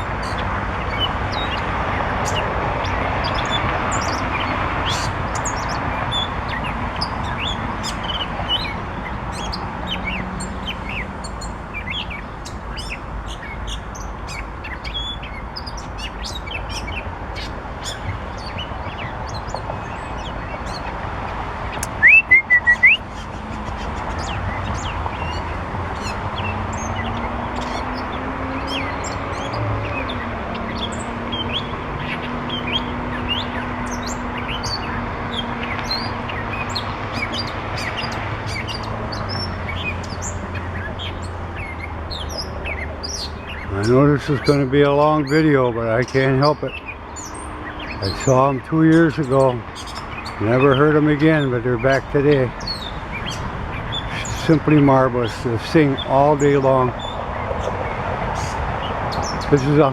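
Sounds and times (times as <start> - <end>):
mockingbird singing: 0.0 - 59.9
short bird chirps: 21.9 - 23.0.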